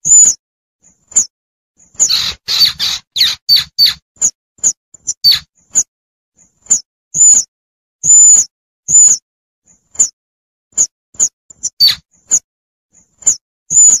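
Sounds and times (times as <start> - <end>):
baby squirrel squeaking: 0.0 - 0.4, 1.9 - 5.9, 6.7 - 9.2, 10.0 - 10.2, 10.8 - 12.4, 13.2 - 14.0.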